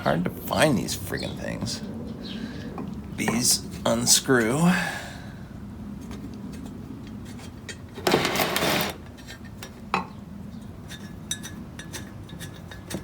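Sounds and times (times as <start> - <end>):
metal scrape: 8.0 - 9.4
metal fan parts clicking: 10.6 - 13.0.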